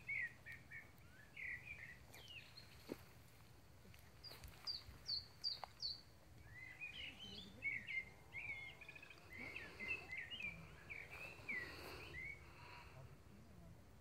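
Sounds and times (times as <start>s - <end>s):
songbirds singing: 0.0s - 13.7s.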